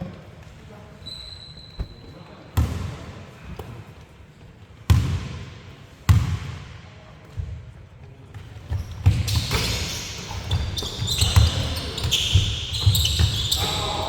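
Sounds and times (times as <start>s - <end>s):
basketball bouncing on gym floor: 1.8s - 2.9s.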